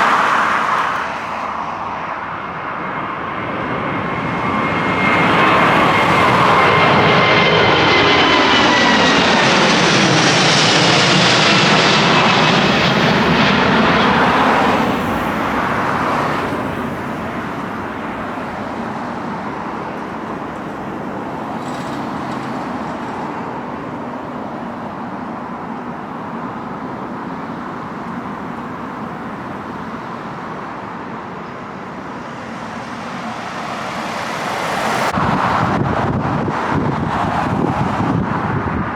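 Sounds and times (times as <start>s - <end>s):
jet airliner taking off: 0.0s - 38.9s.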